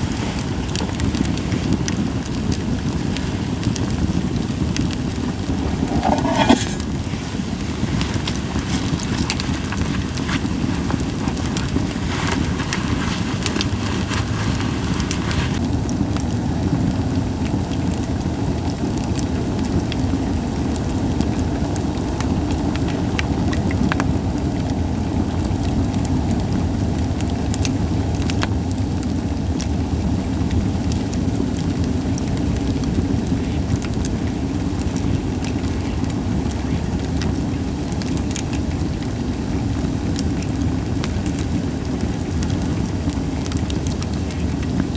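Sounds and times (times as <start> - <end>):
fire hissing: 0.0 - 15.7
firewood crackling and popping: 0.0 - 44.9
low rumble of fire: 0.0 - 44.9.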